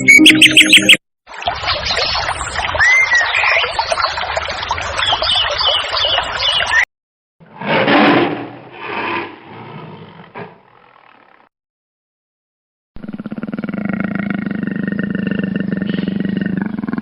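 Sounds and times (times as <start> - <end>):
tiger roaring: 7.4 - 11.4, 13.0 - 17.0
dense birdsong: 14.9 - 17.0.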